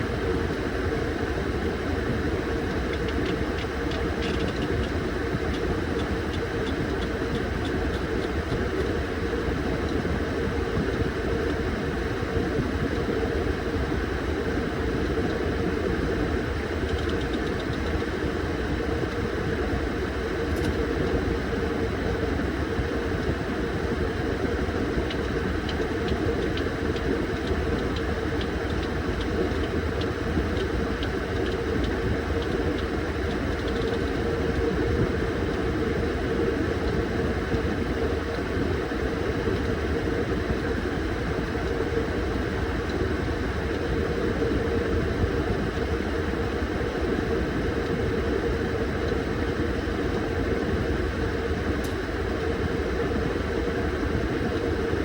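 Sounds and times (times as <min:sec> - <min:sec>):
washing machine motor hum: 0:00.0 - 0:55.0.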